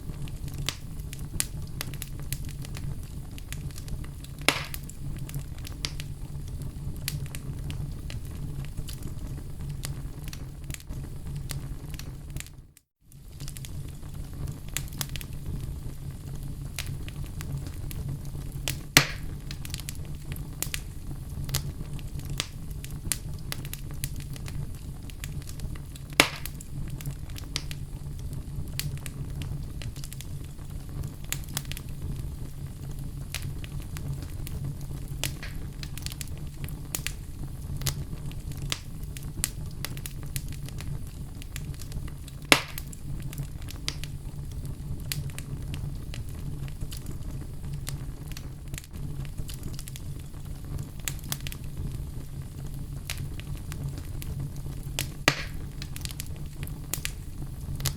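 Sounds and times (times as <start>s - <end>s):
wood fire crackling: 0.0s - 57.9s
logs popping: 4.4s - 6.0s, 18.7s - 19.8s, 26.0s - 26.6s, 35.2s - 36.2s, 42.4s - 43.0s, 54.9s - 56.2s.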